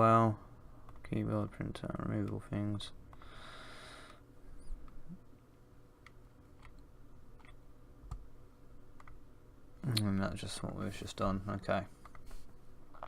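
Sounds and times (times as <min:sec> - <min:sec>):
low steady hum: 0:00.0 - 0:13.0
computer mouse clicks: 0:09.0 - 0:09.2.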